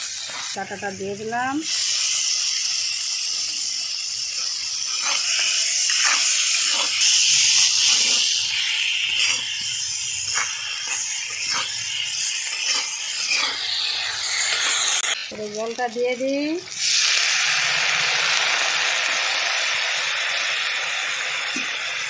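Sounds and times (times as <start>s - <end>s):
masala sizzling in oil: 0.0s - 22.0s
metal spatula scraping a pan: 4.3s - 15.3s.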